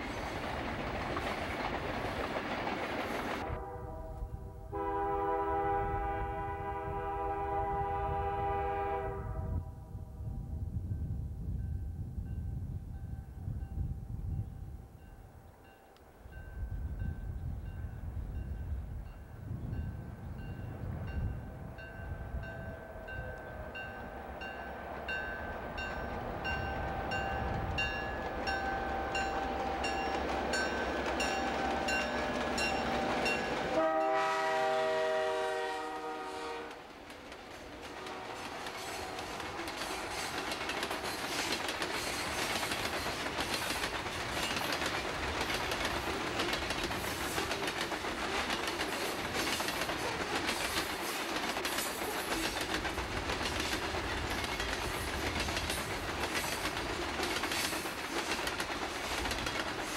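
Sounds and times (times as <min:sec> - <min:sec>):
hopper cars clattering on rails: 0:00.0 - 0:03.5, 0:22.8 - 0:33.8, 0:36.8 - 0:59.9
train horn: 0:03.4 - 0:10.3, 0:28.5 - 0:36.9, 0:37.7 - 0:40.5
locomotive bell ringing: 0:15.0 - 0:34.2
diesel locomotives working: 0:15.0 - 0:59.9.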